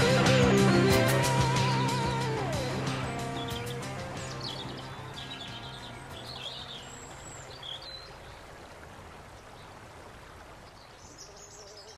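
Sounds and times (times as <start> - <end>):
music track: 0.0 - 6.6
birds chirping: 0.0 - 8.7, 10.6 - 11.9
steady outdoor hiss: 0.0 - 11.9.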